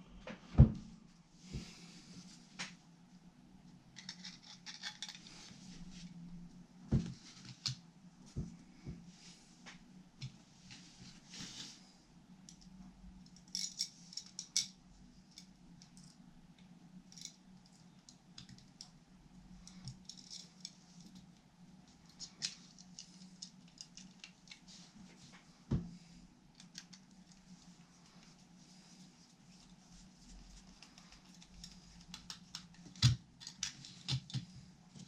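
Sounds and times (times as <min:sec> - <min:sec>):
faint steady hum: 0:00.0 - 0:35.0
small parts and tools clicking: 0:04.0 - 0:05.3, 0:12.5 - 0:19.0, 0:19.6 - 0:21.3, 0:22.0 - 0:24.7, 0:30.7 - 0:35.0.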